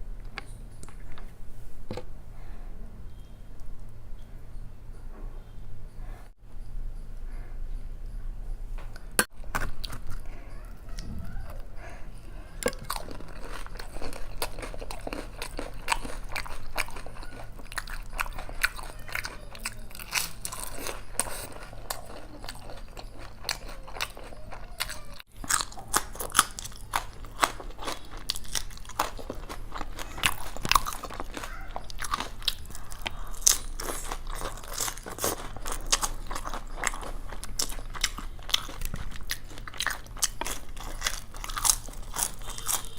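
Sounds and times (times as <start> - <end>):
person chewing crunchy food: 8.9 - 42.9.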